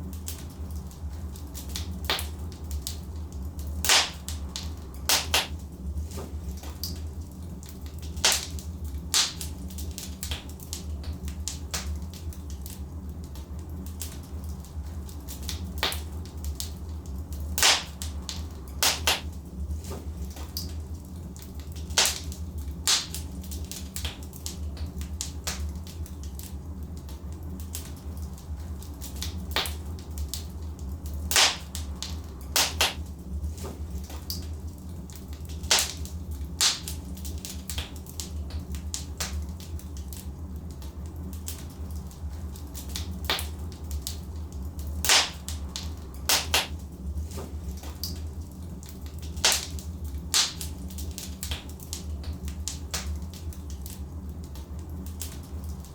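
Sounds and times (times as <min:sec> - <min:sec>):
burning logs crackling and popping: 0:00.0 - 0:55.9
low rumble of flames: 0:00.0 - 0:55.9.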